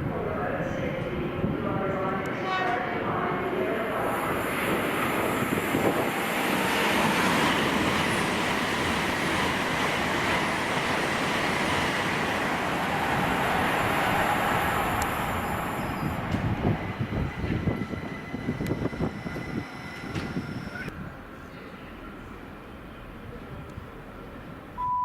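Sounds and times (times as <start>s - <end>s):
train wheels on rail: 4.2s - 21.0s.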